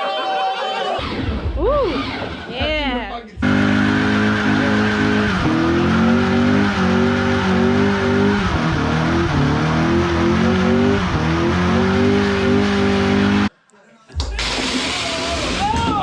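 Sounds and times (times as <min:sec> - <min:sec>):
car engine revving high: 0:01.0 - 0:13.5
spinning tyres: 0:03.4 - 0:13.5.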